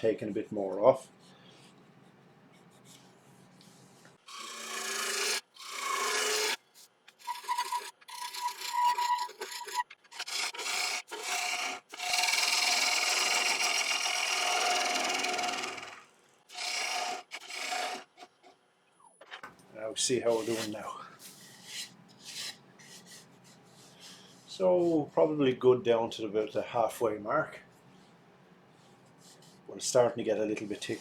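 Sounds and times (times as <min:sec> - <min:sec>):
lathe gouge cutting wood: 0:04.3 - 0:06.6, 0:07.2 - 0:18.1.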